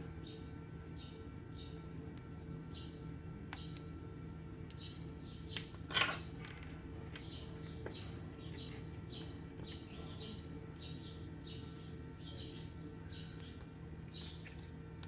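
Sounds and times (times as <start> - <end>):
steady low hum: 0.0 - 15.0
small bird chirping: 4.7 - 5.8, 7.2 - 14.6.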